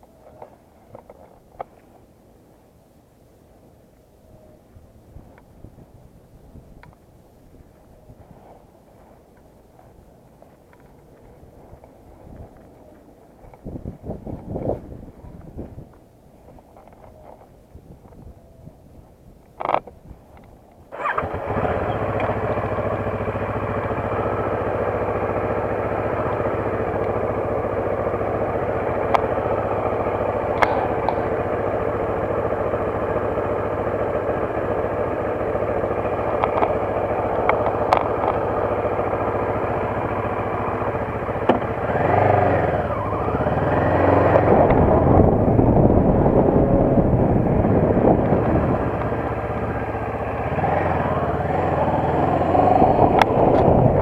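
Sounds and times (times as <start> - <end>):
motorcycle engine revving: 20.9 - 54.0.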